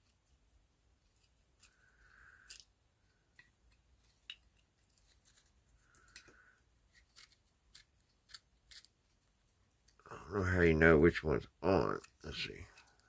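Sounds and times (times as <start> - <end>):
light scrapes of parts: 3.3 - 10.0.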